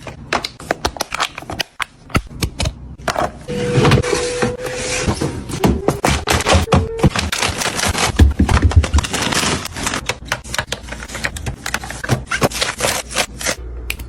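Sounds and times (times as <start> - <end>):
plastic containers clattering: 5.6 - 13.1.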